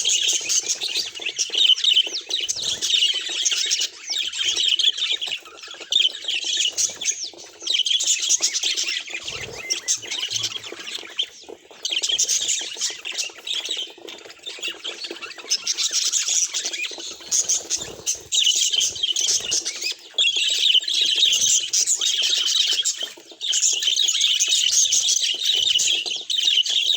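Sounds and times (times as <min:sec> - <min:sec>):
budgerigars chattering: 0:00.0 - 0:26.9.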